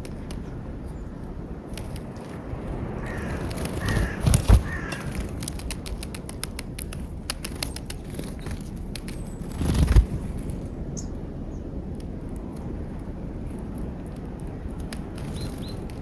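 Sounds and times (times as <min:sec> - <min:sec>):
bird cawing: 0:03.0 - 0:05.5
small clicks and taps: 0:03.1 - 0:09.2, 0:13.5 - 0:16.0.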